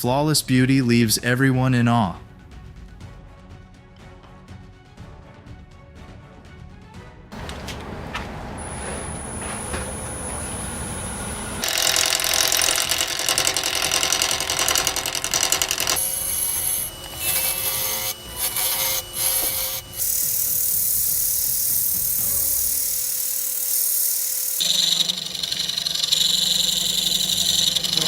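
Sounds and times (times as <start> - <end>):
power tools cutting wood: 8.6 - 28.0.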